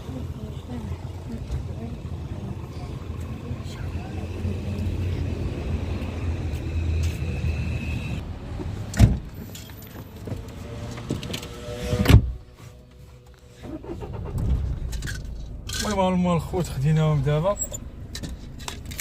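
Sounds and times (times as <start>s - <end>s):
low rumble: 13.4s - 19.0s.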